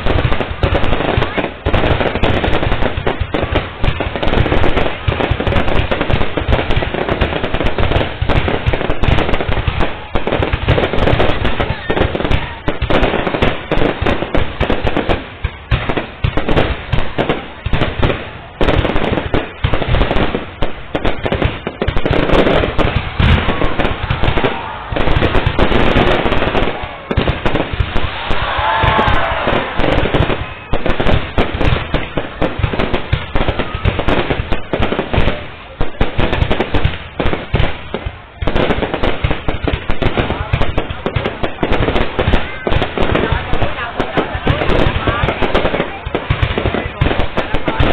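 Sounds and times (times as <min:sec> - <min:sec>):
fireworks bangs and crackles: 0:00.0 - 0:47.9.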